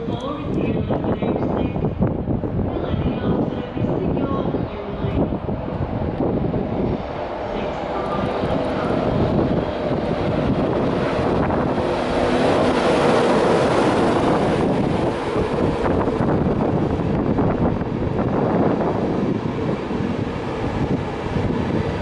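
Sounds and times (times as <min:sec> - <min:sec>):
locomotive running noise: 0:00.0 - 0:22.0
train wheels rumbling on rail: 0:00.0 - 0:22.0.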